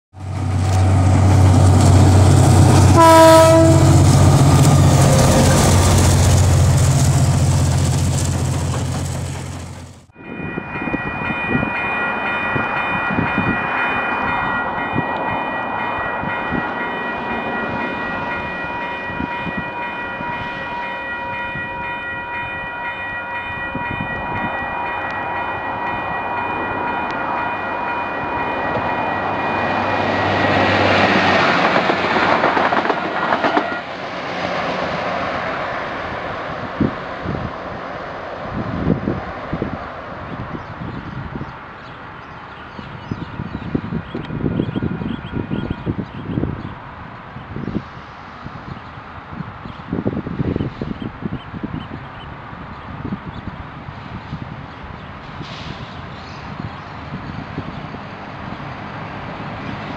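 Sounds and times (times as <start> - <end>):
train rumbling: 0.1 - 59.9
approaching train whine: 0.2 - 40.8
train horn toot: 2.7 - 5.9.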